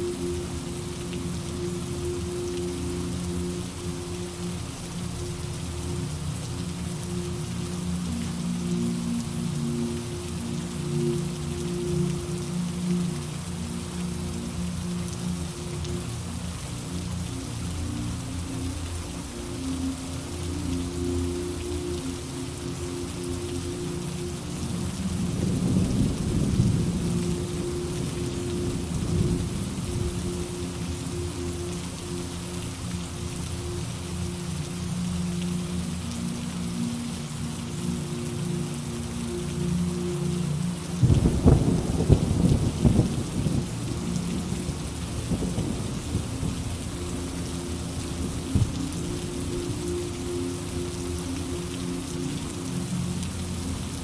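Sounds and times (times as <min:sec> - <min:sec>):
steady rain: 0:00.0 - 0:54.0
rolling thunder: 0:41.0 - 0:43.7.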